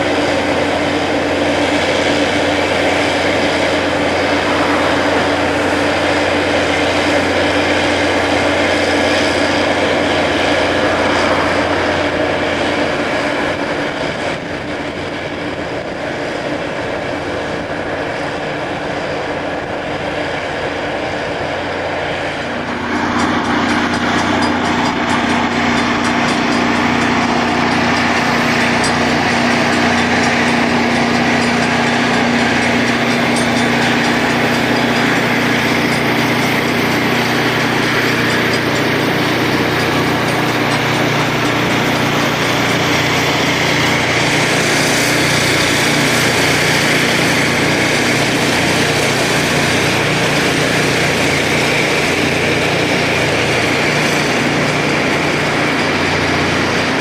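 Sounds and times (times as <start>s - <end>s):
engine drone: 0.0s - 57.0s
rail grinding noise: 0.0s - 57.0s.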